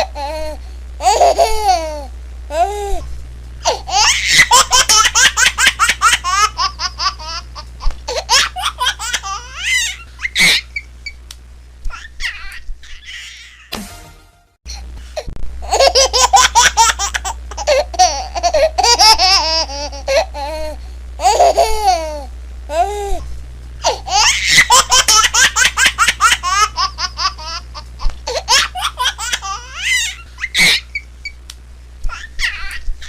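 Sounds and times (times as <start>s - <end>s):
baby laughing: 0.0s - 3.0s, 3.6s - 10.9s, 11.9s - 13.6s, 15.6s - 23.0s, 23.8s - 31.1s, 32.1s - 33.0s.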